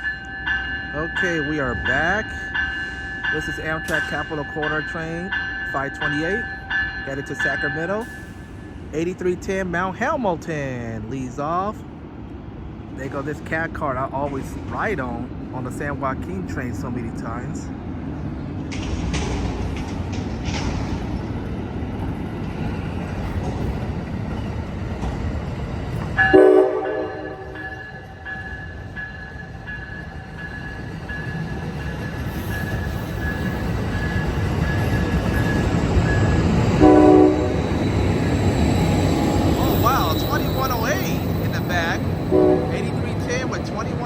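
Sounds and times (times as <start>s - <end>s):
passenger train rumbling: 0.0s - 44.0s
train horn blast: 26.2s - 27.8s, 36.8s - 37.7s, 42.2s - 43.2s.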